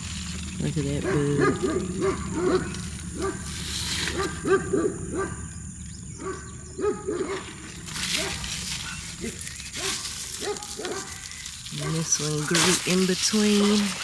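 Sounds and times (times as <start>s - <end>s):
rustle: 0.0s - 4.7s, 7.2s - 14.0s
animal yipping: 0.8s - 5.5s, 6.2s - 12.1s.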